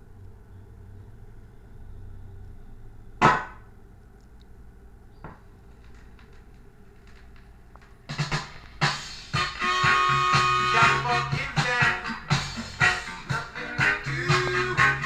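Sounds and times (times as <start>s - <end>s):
low steady hum: 0.0s - 15.0s
sharp knock: 3.2s - 3.6s.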